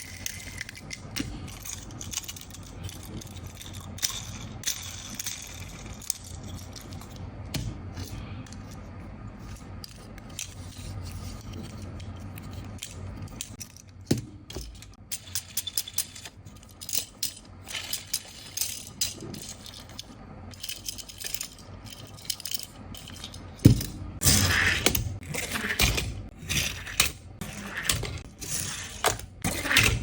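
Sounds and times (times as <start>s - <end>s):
toy metal models clicking and rattling: 0.0s - 7.2s, 9.4s - 24.6s.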